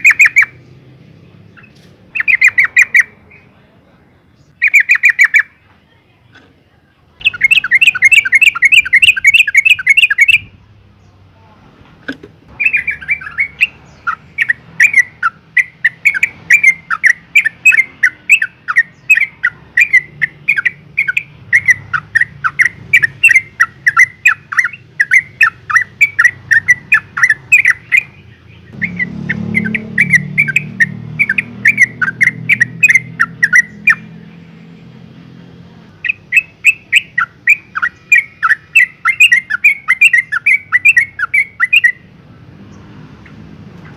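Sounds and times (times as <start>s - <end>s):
bird chattering call: 0.0s - 0.7s, 1.5s - 3.5s, 4.4s - 5.6s, 7.2s - 10.6s, 12.5s - 34.2s, 36.0s - 42.1s.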